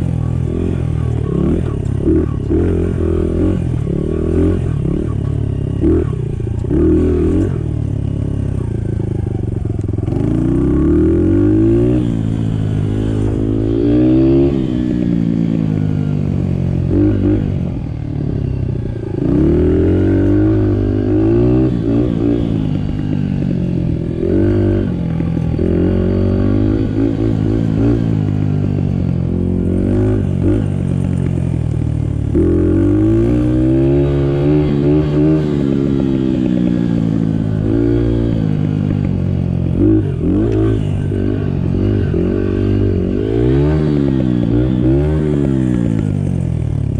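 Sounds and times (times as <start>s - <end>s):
dirt bike engine revving: 9.9s - 17.5s, 18.9s - 31.4s, 32.1s - 39.0s, 39.6s - 46.4s.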